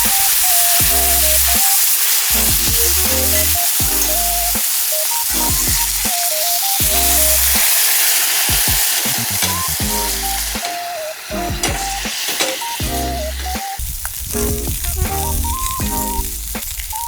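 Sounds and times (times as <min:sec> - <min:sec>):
background music: 0:00.0 - 0:17.0
meat sizzling in a frying pan: 0:00.0 - 0:17.0.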